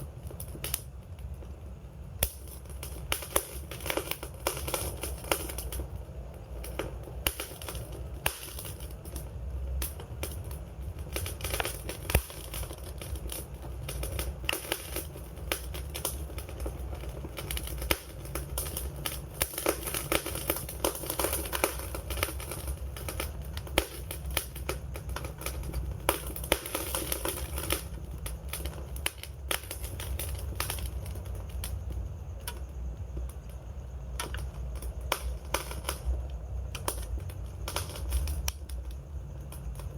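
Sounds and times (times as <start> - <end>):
low fire rumble: 0.0 - 39.9
wood fire crackling: 0.0 - 39.9.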